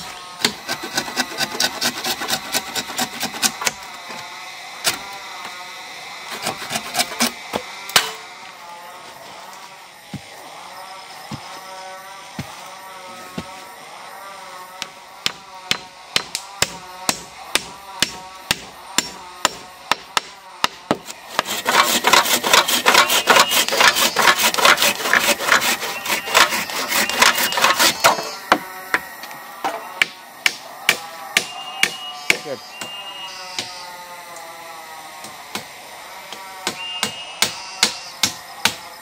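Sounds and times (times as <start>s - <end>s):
tool striking wood: 6.3s - 8.2s, 14.8s - 33.7s, 36.3s - 38.8s.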